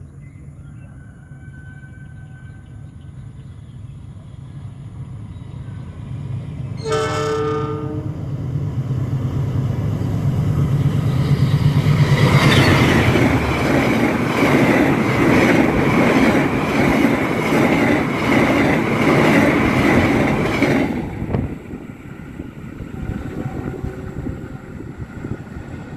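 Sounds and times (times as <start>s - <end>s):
train rushing past: 3.2s - 25.9s
train horn blast: 6.8s - 8.6s, 22.8s - 25.0s
wheels clacking over rail joints: 11.6s - 22.0s.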